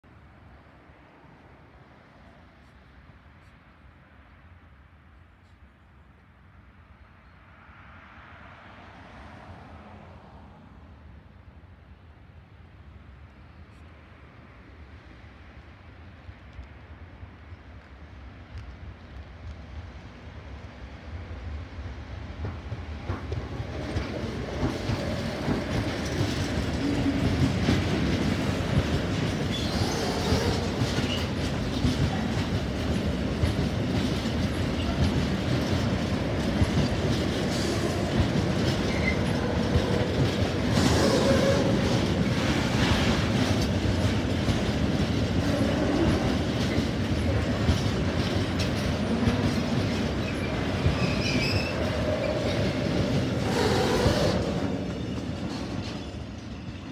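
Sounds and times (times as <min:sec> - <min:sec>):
train wheels rumbling on rail: 0:13.7 - 0:56.9
clickety-clack over rail joints: 0:16.3 - 0:16.8, 0:17.5 - 0:56.9
faint wheel squeals: 0:29.5 - 0:31.4, 0:50.2 - 0:56.9.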